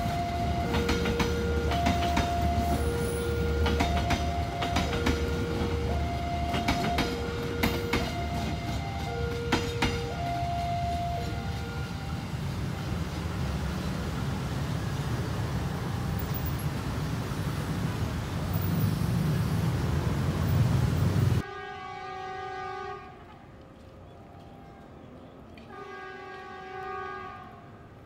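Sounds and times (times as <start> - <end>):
train rumbling past: 0.0 - 28.0
train horn chord: 21.4 - 23.6, 25.6 - 28.0.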